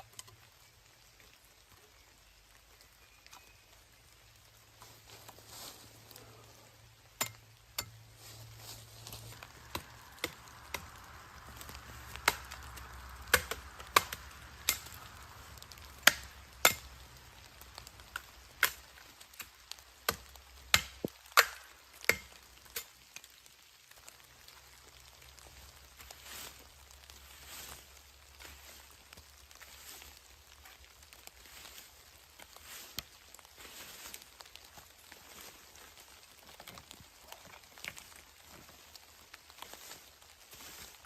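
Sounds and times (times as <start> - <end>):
blade chopping wood: 11.6 - 15.0, 16.0 - 16.8, 20.1 - 22.9.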